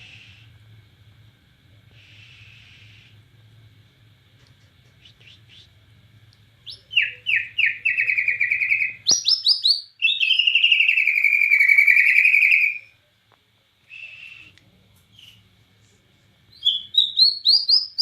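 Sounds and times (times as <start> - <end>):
songbird singing trills: 6.6 - 13.0, 16.5 - 18.0.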